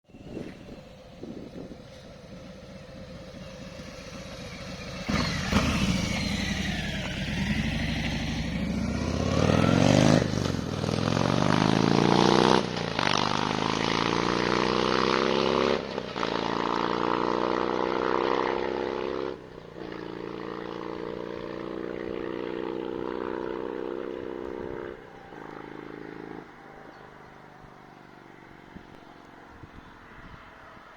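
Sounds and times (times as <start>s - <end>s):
motorcycle engine accelerating: 0.2s - 29.8s.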